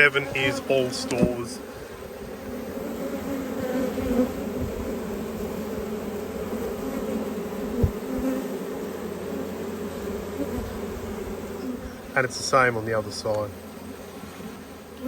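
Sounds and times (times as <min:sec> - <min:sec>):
bees buzzing: 0:00.0 - 0:15.0
thump: 0:01.1 - 0:01.4.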